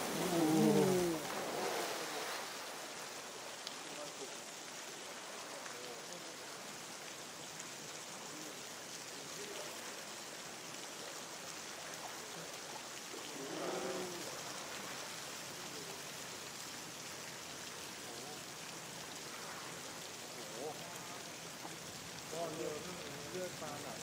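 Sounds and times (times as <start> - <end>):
running water: 0.0 - 24.0
wavering voice: 0.1 - 1.3.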